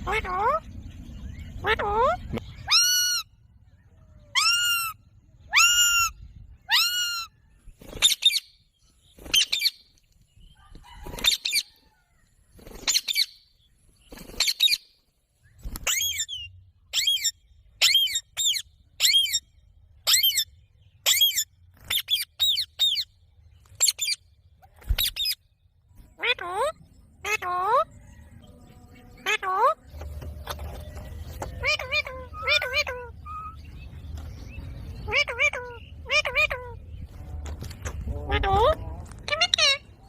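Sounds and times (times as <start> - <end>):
parrot shrill calls: 1.6 - 3.3, 4.3 - 7.4, 31.6 - 33.6.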